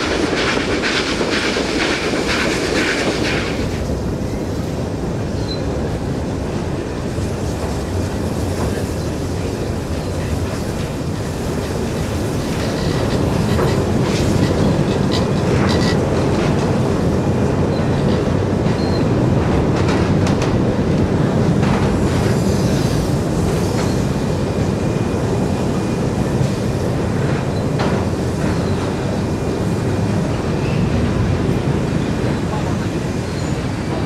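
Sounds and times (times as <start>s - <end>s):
train wheels rumbling on rails: 0.0s - 34.0s
clanks from rail joints: 9.8s - 24.3s, 26.3s - 31.7s.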